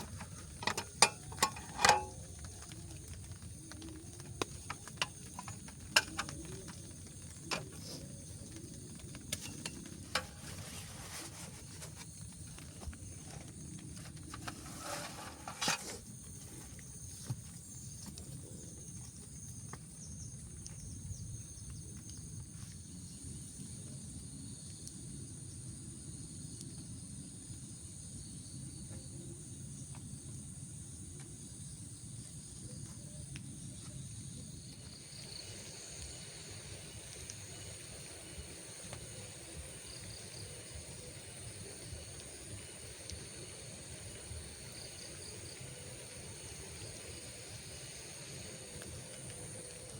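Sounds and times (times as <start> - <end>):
sharp clicks and knocks: 0.0 - 2.4, 4.4 - 6.8
rustle: 0.0 - 30.6, 31.2 - 49.9
night insects chorus: 0.0 - 49.9.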